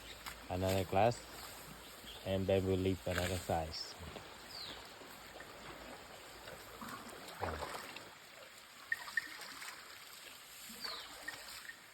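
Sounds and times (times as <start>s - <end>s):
water trickling and splashing: 0.0s - 11.9s.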